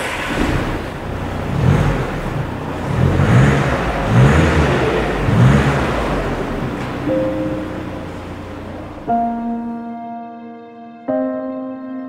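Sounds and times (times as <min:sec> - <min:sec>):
diesel car engine revving: 0:00.0 - 0:09.1.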